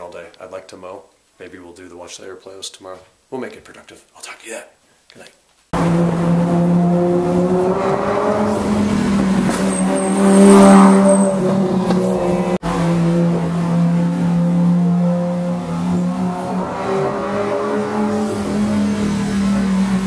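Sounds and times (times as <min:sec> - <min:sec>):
car engine running: 0:05.8 - 0:20.0.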